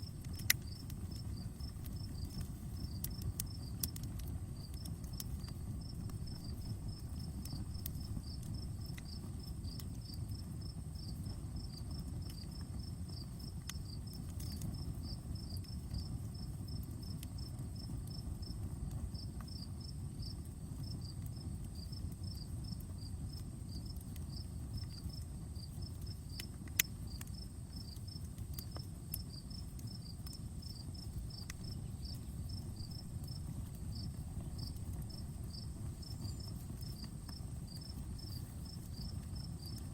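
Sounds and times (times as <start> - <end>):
campfire crackling and popping: 0.0 - 39.9
crickets chirping: 0.0 - 39.9
low steady rumble: 21.4 - 39.9.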